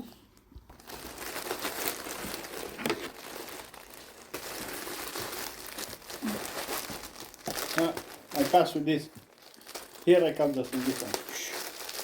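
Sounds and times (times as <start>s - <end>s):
parcel packaging crinkling: 0.6s - 12.0s.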